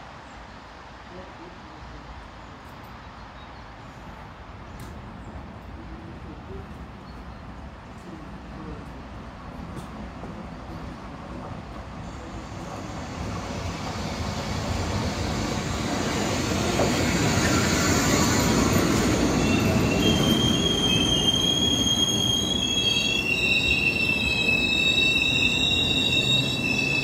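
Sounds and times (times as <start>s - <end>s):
train rumbling past: 4.0s - 27.0s
high wheel squeal: 17.0s - 27.0s.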